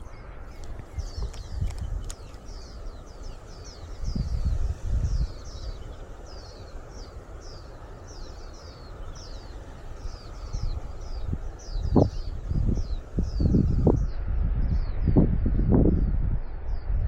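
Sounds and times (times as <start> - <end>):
bird singing: 0.0 - 15.2
wind on microphone: 0.0 - 17.0
sharp clicks: 0.6 - 2.5.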